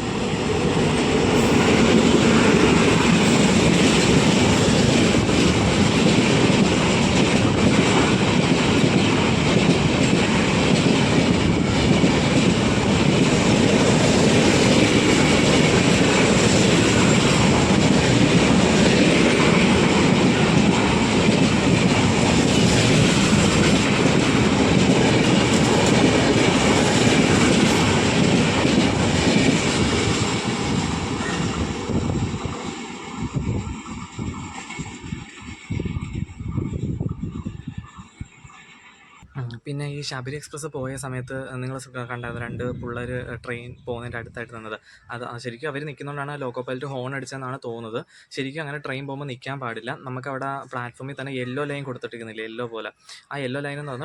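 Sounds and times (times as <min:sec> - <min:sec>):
train wheels clattering over rails: 0:00.0 - 0:36.8.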